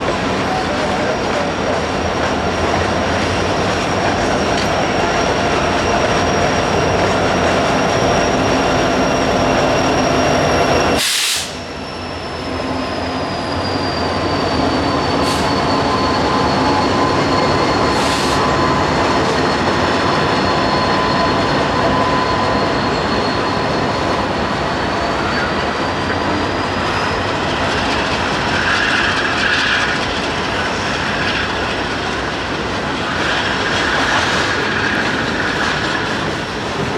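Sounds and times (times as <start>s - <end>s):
train wheels rumbling on rail: 0.0s - 36.9s
high wheel squeal: 0.2s - 36.9s.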